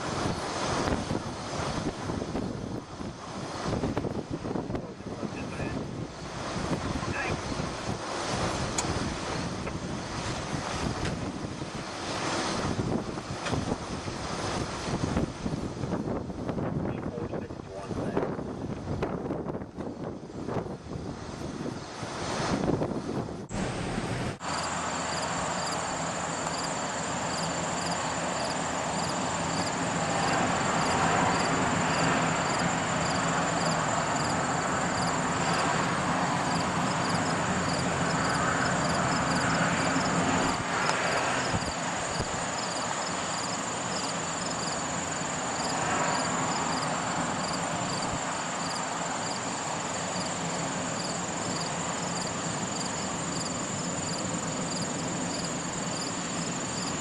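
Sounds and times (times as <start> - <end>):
rushing noise: 20.8 - 57.0
insects chirping: 24.4 - 57.0.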